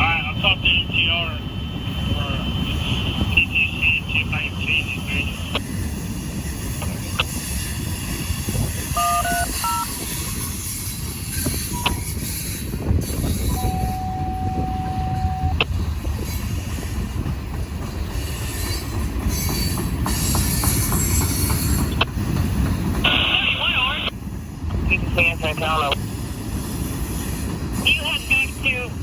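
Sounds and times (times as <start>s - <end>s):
freight train rolling past: 0.0s - 29.0s
radio scanner beeps: 9.0s - 9.9s, 13.5s - 15.7s.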